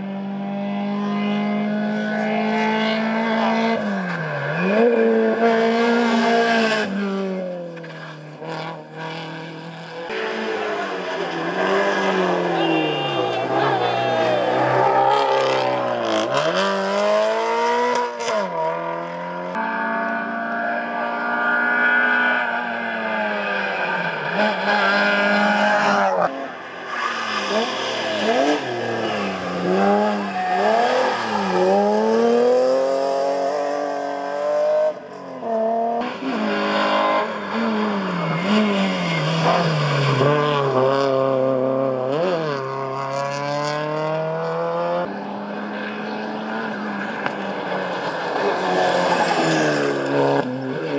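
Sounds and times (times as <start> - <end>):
race car engines revving: 0.0 - 50.9.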